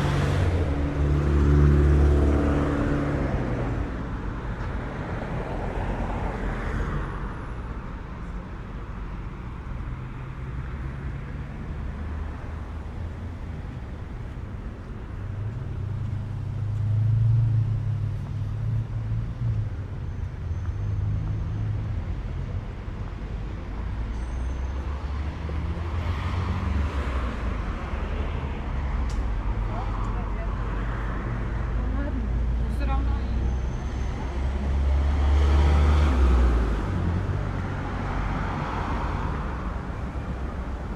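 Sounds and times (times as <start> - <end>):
heavy vehicle engine drone: 0.0 - 5.1
cars passing: 0.0 - 40.9.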